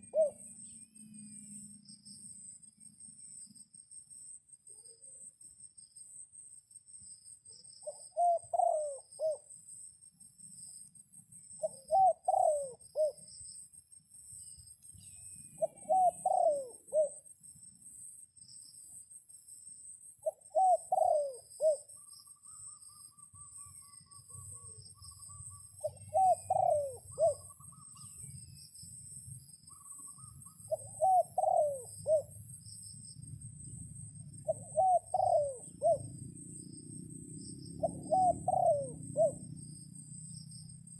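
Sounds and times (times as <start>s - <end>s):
dove cooing: 0.0s - 0.6s, 7.8s - 9.5s, 11.6s - 13.2s, 15.6s - 17.2s, 20.2s - 28.1s, 29.7s - 32.4s, 34.3s - 36.3s, 37.7s - 40.2s
insects trilling: 0.0s - 40.9s.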